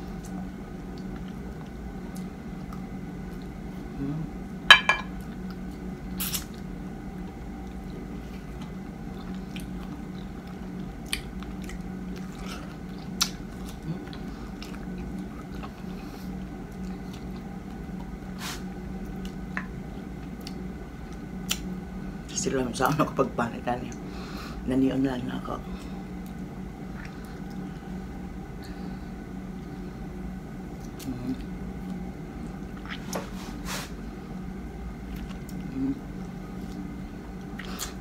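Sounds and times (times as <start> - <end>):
steady background hum: 0.0 - 38.0
person chewing mango: 5.2 - 18.3, 30.7 - 33.2, 35.0 - 38.0.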